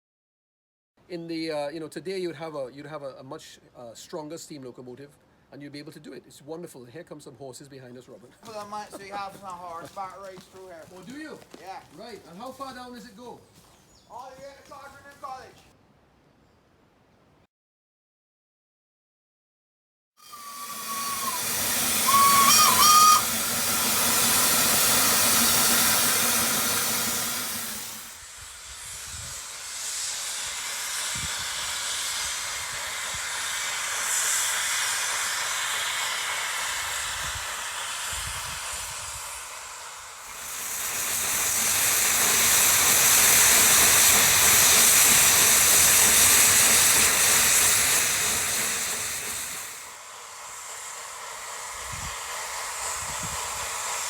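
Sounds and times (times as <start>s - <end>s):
steam hissing: 8.4s - 15.6s, 20.2s - 54.0s
steam locomotive whistle: 20.2s - 49.8s.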